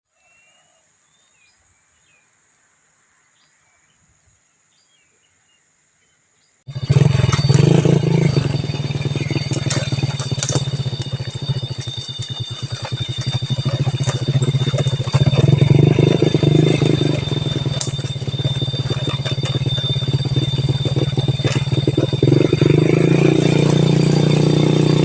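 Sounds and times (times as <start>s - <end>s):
birds chirping: 6.4s - 25.0s
engine running close by: 6.7s - 25.0s
high insect tone: 6.7s - 25.0s.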